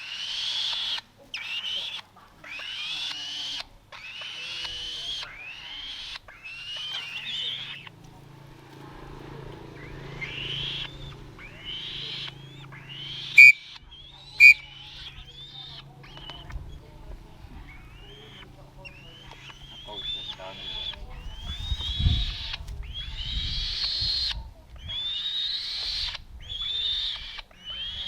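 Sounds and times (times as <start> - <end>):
young falcon begging calls: 0.0 - 8.7, 9.6 - 28.0
shrill falcon notes: 9.7 - 16.8.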